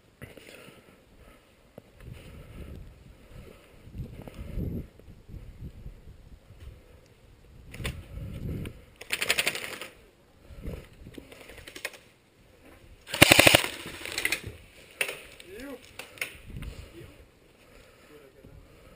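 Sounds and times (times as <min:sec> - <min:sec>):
airsoft gun rapid clicks: 0:09.0 - 0:10.0, 0:13.1 - 0:14.4.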